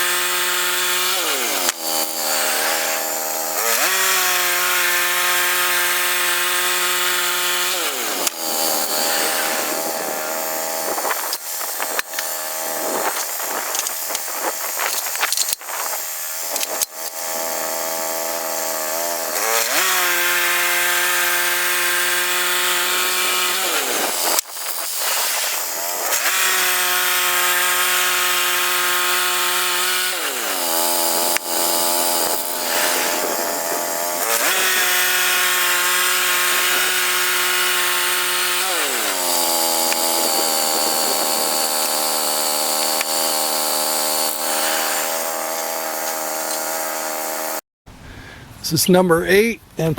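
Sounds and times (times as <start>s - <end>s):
band blade sawing: 0.0s - 47.6s
sawmill gasoline engine: 0.0s - 47.6s.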